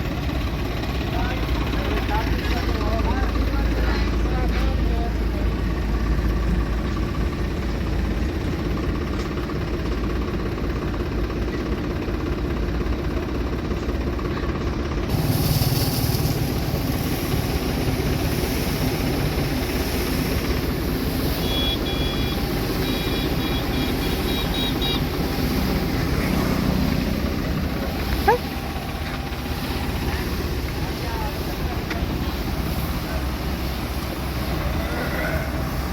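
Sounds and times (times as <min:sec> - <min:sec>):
tractor engine running: 0:00.0 - 0:35.9
high pulsing beeps: 0:21.4 - 0:25.0.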